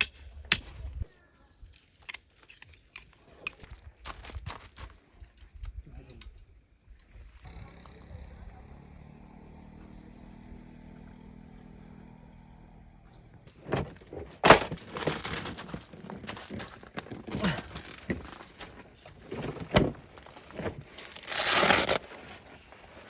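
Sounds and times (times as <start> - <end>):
metal parts clattering: 13.6 - 22.2
packaging rustling: 13.6 - 23.0.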